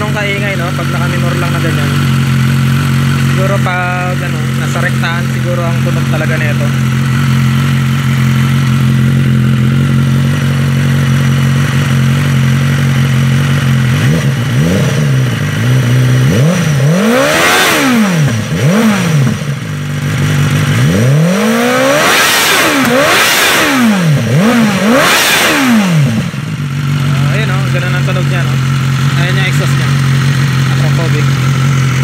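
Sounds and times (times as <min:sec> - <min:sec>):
sport bike engine idling and revving: 0:00.0 - 0:32.0.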